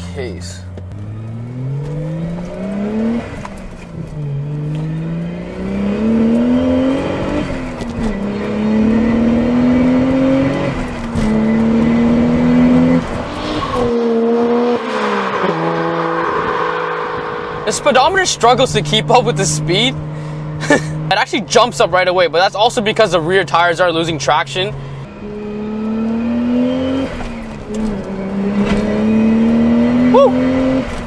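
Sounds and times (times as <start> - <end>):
car pulling away: 0.6 - 31.0
car engine accelerating hard: 0.7 - 31.0.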